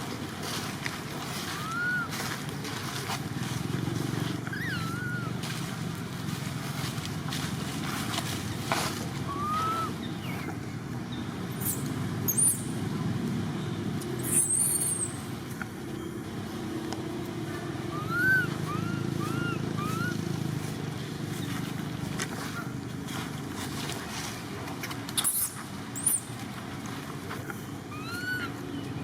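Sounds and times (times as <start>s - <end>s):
short chirping calls: 4.5s - 5.4s, 9.2s - 10.6s, 11.5s - 12.8s, 14.2s - 16.2s, 17.9s - 20.2s, 25.2s - 26.4s.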